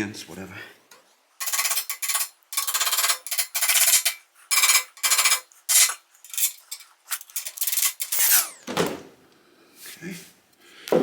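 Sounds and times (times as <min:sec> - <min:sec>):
hand tool rasping steel: 0:01.4 - 0:06.8.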